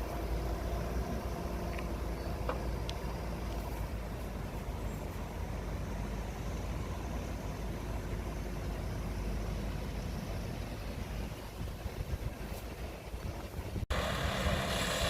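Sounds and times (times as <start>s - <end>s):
car engine running: 13.9s - 15.0s.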